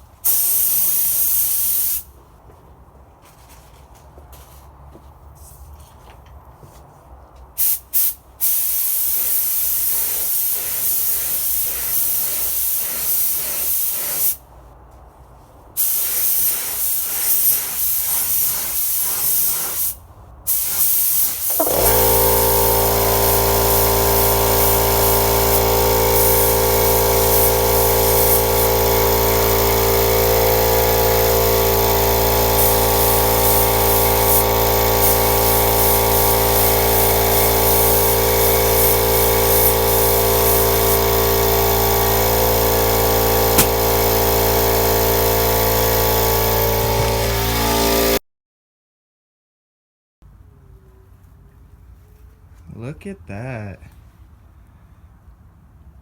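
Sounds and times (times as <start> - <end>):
air spray gun hissing: 0.2 - 2.1, 7.6 - 14.4, 15.8 - 48.2
loud steady machine hum: 21.5 - 48.2.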